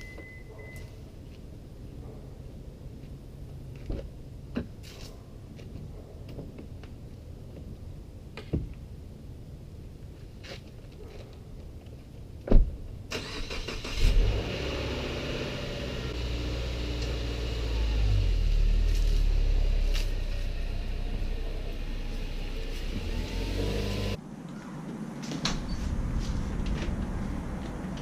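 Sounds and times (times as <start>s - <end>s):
vehicle engine running: 14.3s - 24.2s.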